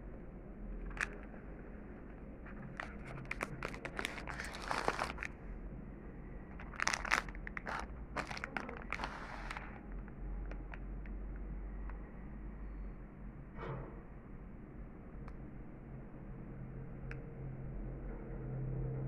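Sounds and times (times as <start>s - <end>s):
plastic wrapper crinkling: 0.9s - 1.4s, 2.5s - 5.4s, 6.6s - 11.1s.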